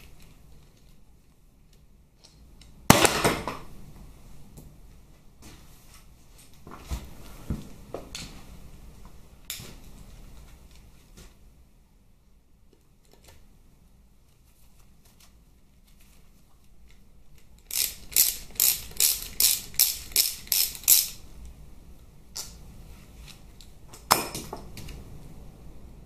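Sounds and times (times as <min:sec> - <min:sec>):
hand ratchet clicking: 0:17.7 - 0:21.2.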